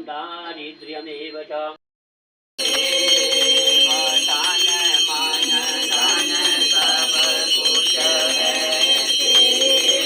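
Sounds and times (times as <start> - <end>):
hand bell ringing: 2.6 - 10.0
people singing devotional song: 2.6 - 10.0.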